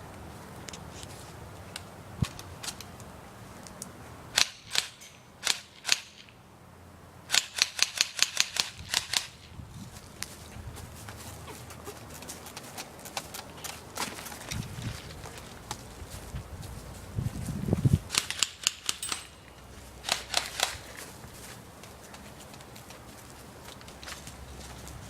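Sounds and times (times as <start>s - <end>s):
airsoft gun shots: 4.4s - 6.3s, 18.1s - 19.4s, 20.0s - 20.8s.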